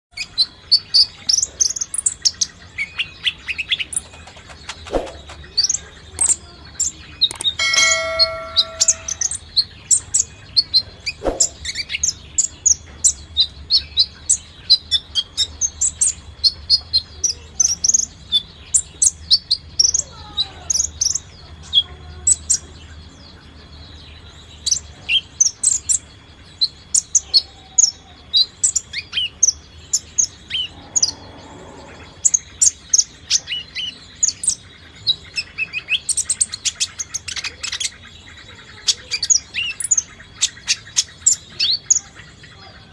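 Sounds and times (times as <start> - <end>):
bird chirping rapidly: 3.6 - 6.3
ringing tone: 7.3 - 9.4.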